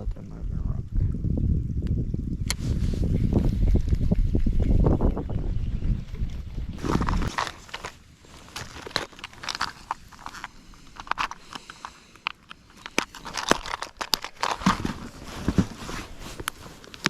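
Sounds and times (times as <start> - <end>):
plastic package crinkling: 6.8 - 17.0.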